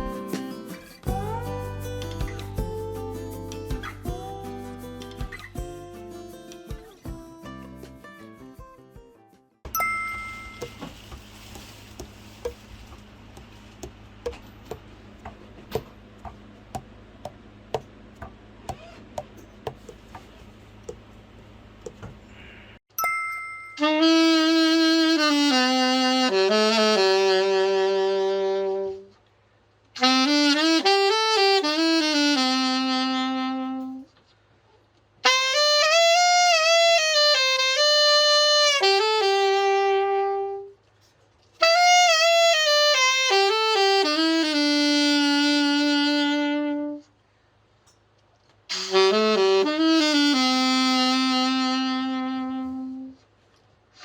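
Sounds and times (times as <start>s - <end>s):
solo alto saxophone melody: 23.8s - 29.2s, 30.0s - 34.2s, 35.2s - 40.8s, 41.6s - 47.2s, 48.7s - 53.3s.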